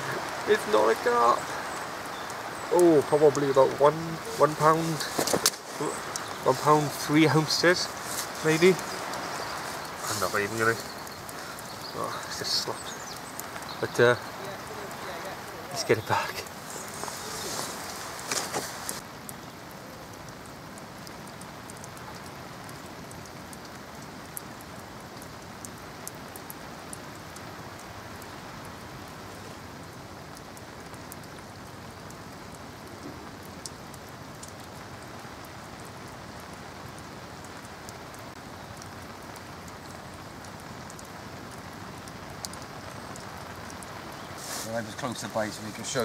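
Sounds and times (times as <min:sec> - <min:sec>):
steady rain hissing: 0:00.0 - 0:46.0.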